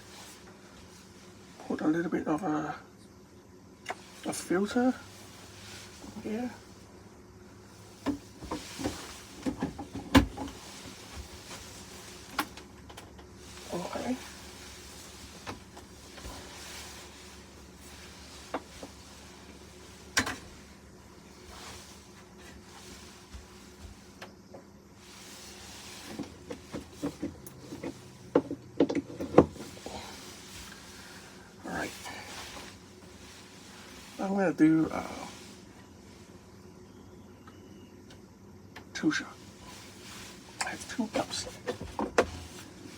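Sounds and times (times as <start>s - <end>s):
faint steady hum: 0.0s - 42.9s
knocks and clicks of coffee gear: 8.0s - 10.6s, 20.1s - 20.4s, 26.2s - 29.7s.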